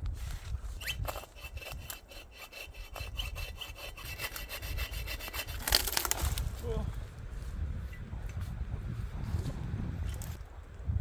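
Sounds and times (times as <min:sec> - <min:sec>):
hand saw cutting log: 0:00.8 - 0:06.4.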